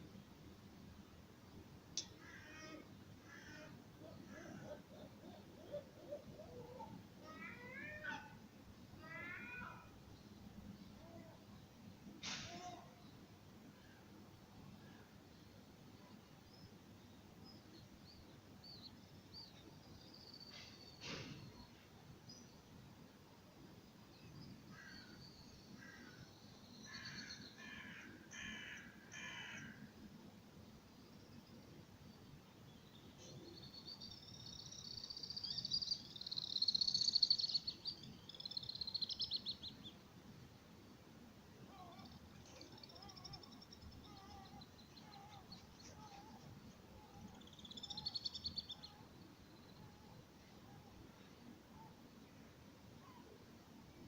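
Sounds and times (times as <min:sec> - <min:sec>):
crow cawing: 0:26.9 - 0:29.8
soft short bird calls: 0:41.7 - 0:49.0
bird trill of high chirps: 0:47.1 - 0:49.0.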